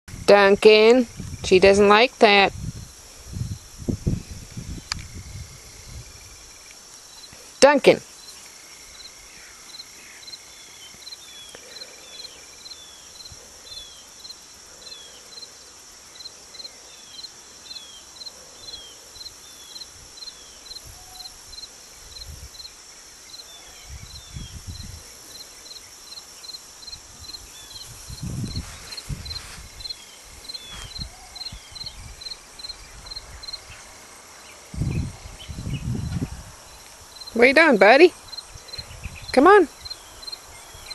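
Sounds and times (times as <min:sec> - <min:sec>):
insect chirping: 0:00.1 - 0:40.9
insects buzzing: 0:00.1 - 0:40.9
rustling: 0:27.7 - 0:33.9.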